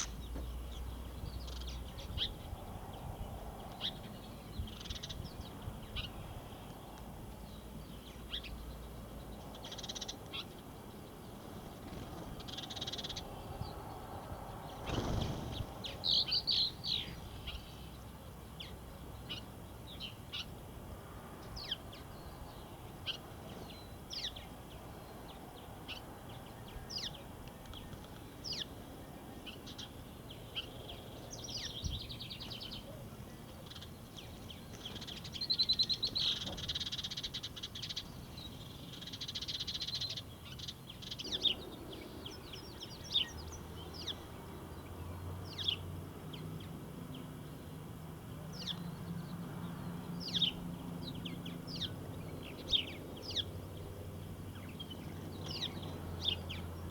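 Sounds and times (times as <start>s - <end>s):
songbirds chirping: 0.0s - 56.9s.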